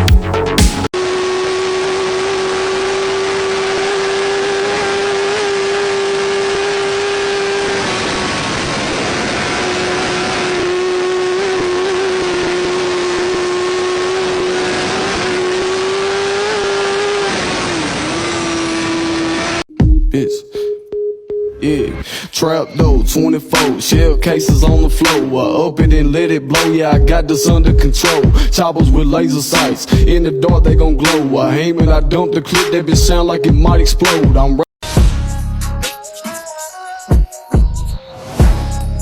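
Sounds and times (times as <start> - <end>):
motorcycle engine at high revs: 1.0 - 19.7.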